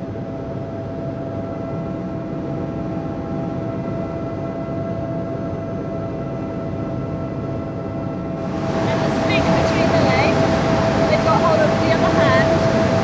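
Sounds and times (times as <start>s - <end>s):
helicopter engine and rotor drone: 0.0s - 13.0s
high whine: 8.3s - 13.0s.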